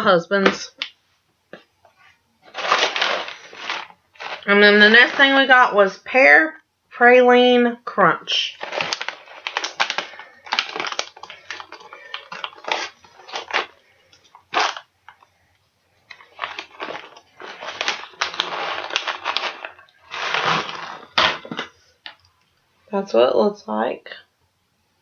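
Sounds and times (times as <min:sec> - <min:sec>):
plastic pouch crinkling: 0:02.4 - 0:05.6, 0:08.4 - 0:15.3, 0:16.0 - 0:22.2.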